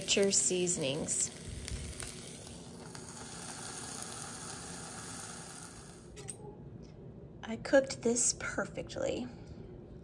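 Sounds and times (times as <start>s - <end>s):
chicken sizzling on grill: 0.0s - 6.2s.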